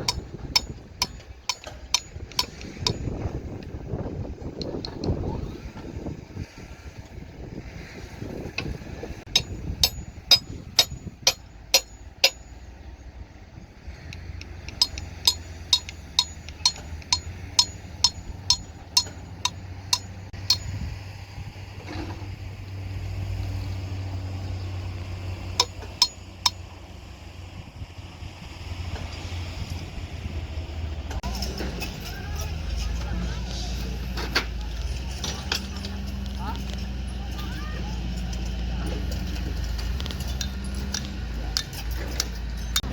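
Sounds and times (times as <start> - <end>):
low engine hum: 0.0 - 42.9
hammer ringing on metal: 9.3 - 12.5, 14.7 - 20.7.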